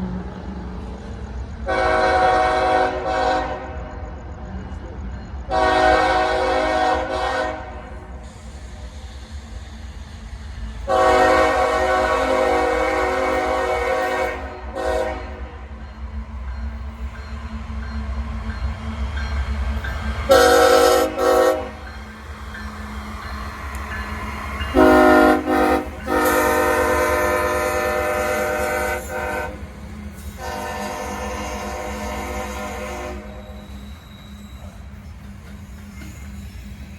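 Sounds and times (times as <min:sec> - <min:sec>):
locomotive air horn chord: 0:01.7 - 0:03.8, 0:05.5 - 0:07.8, 0:10.9 - 0:15.5, 0:20.3 - 0:21.8, 0:24.7 - 0:29.6, 0:30.4 - 0:33.5.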